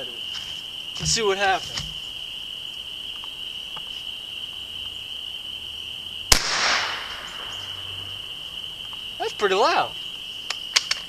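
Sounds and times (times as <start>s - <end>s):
crickets chirping: 0.0s - 11.0s
loud gunshot echoing: 6.3s - 7.8s.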